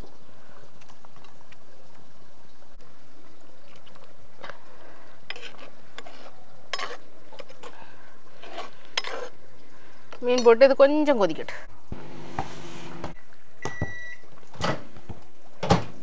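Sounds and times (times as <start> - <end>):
pot of curry boiling: 0.0 - 10.1.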